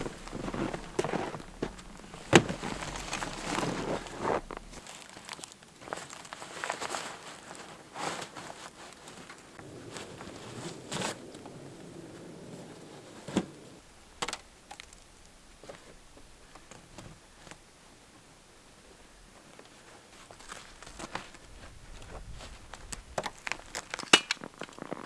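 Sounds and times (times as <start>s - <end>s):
rustling and crinkling: 0.0s - 11.2s, 18.7s - 25.0s.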